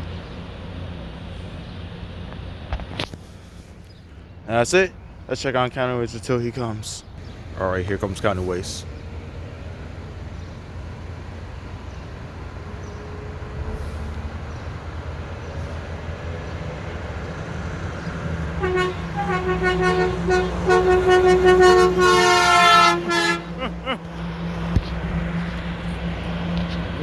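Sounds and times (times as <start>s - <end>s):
garbage truck diesel engine: 0.0s - 27.0s
truck horn toots: 18.5s - 24.0s.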